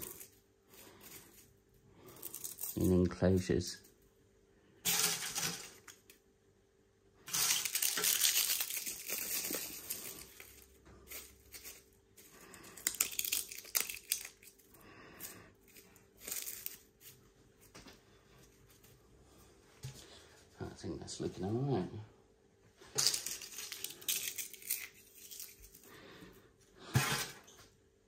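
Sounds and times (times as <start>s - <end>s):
dry leaves crinkling and rustling: 7.3s - 14.6s, 15.7s - 17.2s, 23.0s - 25.8s.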